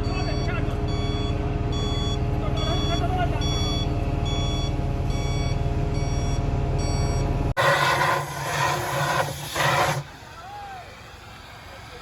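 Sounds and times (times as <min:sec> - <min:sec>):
reversing alarm beeping: 0:00.0 - 0:07.4
heavy vehicle engine running: 0:00.0 - 0:12.0
loud hissing noise: 0:07.6 - 0:10.1.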